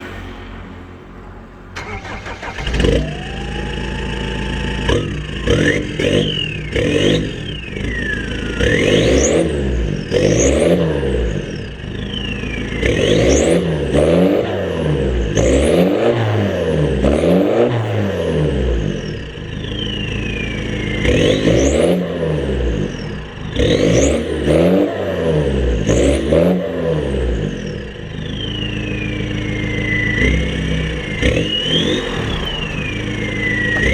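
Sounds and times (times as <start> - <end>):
diesel engine revving: 0.0 - 33.9
turbo whistling: 1.8 - 10.5, 11.8 - 13.7, 19.4 - 25.1, 27.9 - 33.9.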